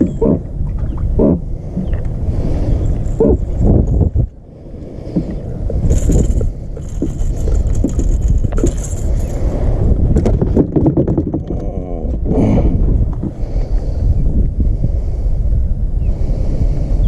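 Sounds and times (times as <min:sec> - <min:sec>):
wind buffeting microphone: 0:00.0 - 0:17.0
handling knocks and rattles: 0:05.8 - 0:09.5, 0:10.1 - 0:11.7.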